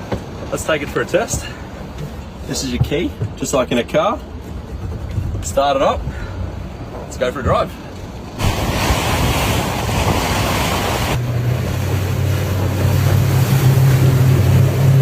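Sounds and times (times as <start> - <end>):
rushing water: 5.8 - 15.0
outboard motor humming: 8.0 - 15.0
wind on microphone: 8.4 - 15.0.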